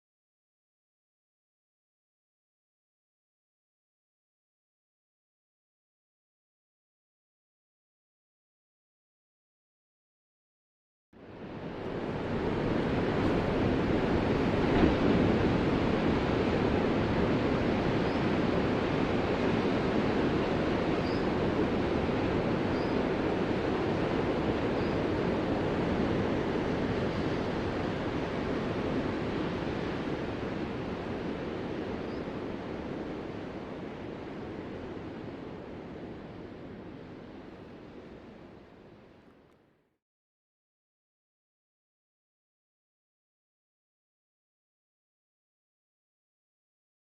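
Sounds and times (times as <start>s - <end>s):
ocean waves: 11.2s - 39.2s.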